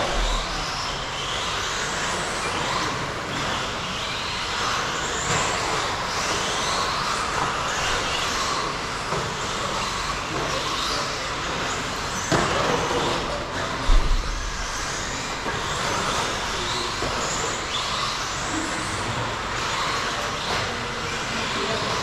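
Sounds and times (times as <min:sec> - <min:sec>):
heavy low thump: 0:00.0 - 0:01.2, 0:13.8 - 0:15.2
rc truck motors whining: 0:00.0 - 0:22.0.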